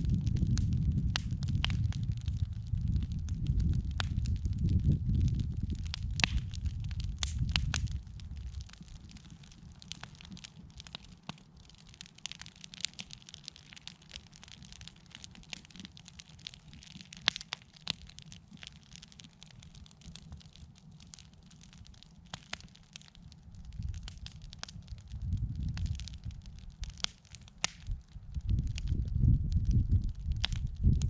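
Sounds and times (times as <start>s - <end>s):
low steady rumble: 0.0s - 9.0s, 27.9s - 31.0s
campfire crackling and popping: 0.0s - 31.0s.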